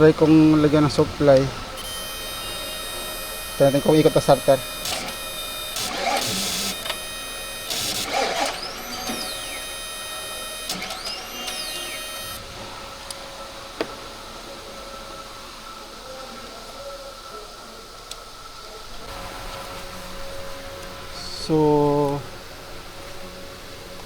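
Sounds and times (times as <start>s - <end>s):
short noisy bursts: 0.0s - 12.5s
starter motor whirring: 0.0s - 12.8s.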